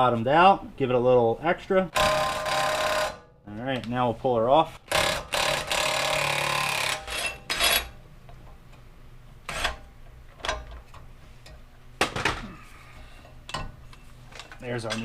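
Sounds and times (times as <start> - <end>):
impact wrench running: 2.0 - 3.3, 4.8 - 7.9.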